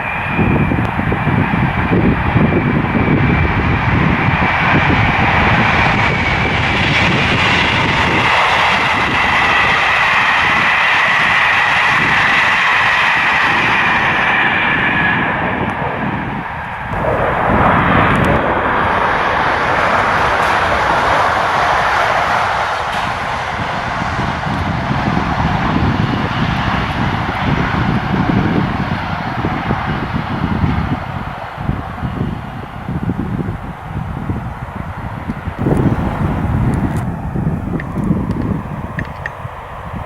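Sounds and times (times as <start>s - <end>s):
train passing at speed: 0.0s - 40.0s
faint falling whine: 35.6s - 40.0s.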